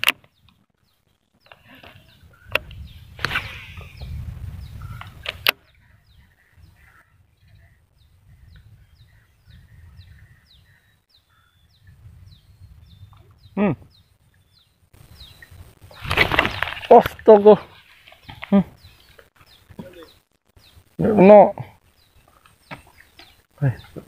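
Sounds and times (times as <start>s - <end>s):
handling noise rumbling: 14.9s - 21.0s.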